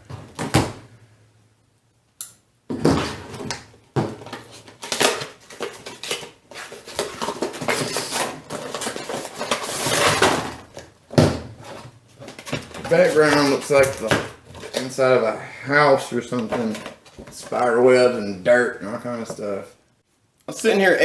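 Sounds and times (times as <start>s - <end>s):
plastic packaging crinkling: 4.1s - 11.0s, 11.6s - 15.3s.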